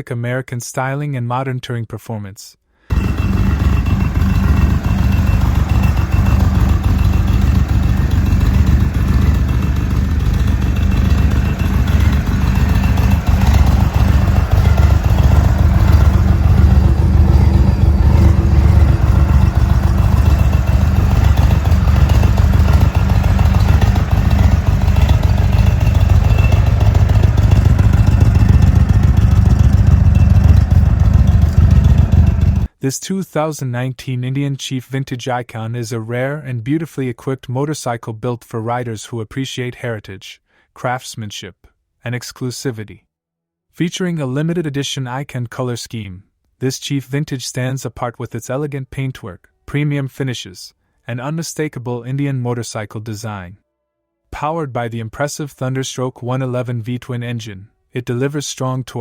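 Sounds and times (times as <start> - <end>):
motorcycle engine rumbling: 2.9 - 32.7.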